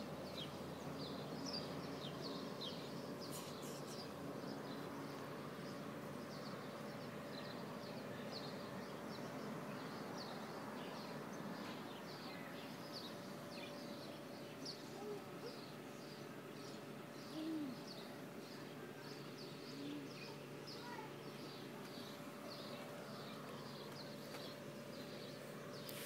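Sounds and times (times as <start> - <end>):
birds chirping: 0.1 - 26.0
low bird calls: 17.2 - 18.2.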